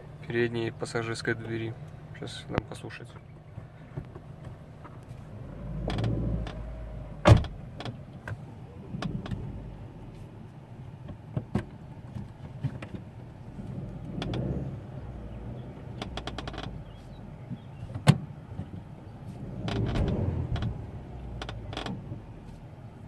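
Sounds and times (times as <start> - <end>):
car door squeaking and clicking: 5.2 - 10.2, 11.4 - 22.6
low rumble: 5.2 - 10.5, 13.4 - 17.4, 18.8 - 22.5.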